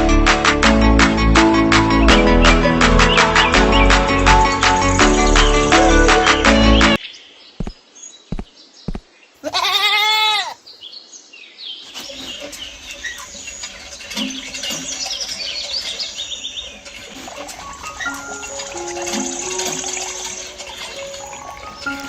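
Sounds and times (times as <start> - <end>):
goat bleating: 9.4 - 10.6.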